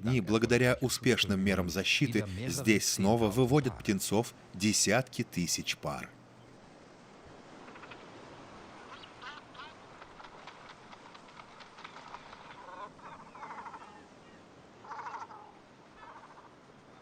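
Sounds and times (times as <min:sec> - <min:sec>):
cormorants croaking: 0:07.4 - 0:17.0.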